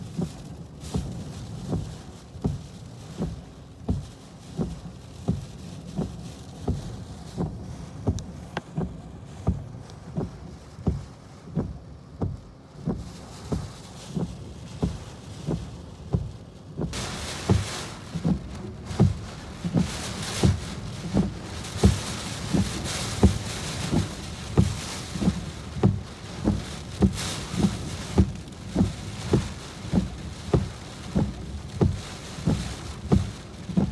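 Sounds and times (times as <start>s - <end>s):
heavy rain on a car: 0.0s - 33.9s
wind: 0.0s - 33.9s
steady even thumping: 16.9s - 33.9s.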